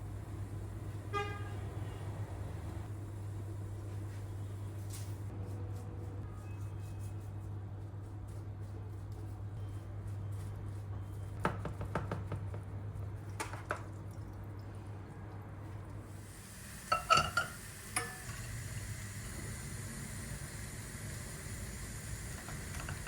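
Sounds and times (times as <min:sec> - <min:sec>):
dishes knocking: 0:16.9 - 0:18.2
dishes clinking: 0:16.9 - 0:18.6.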